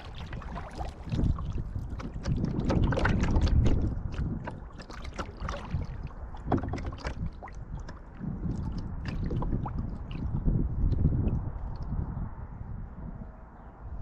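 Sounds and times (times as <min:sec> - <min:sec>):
paddle splashing water: 0:00.0 - 0:11.8
steady low rumble: 0:00.0 - 0:14.0.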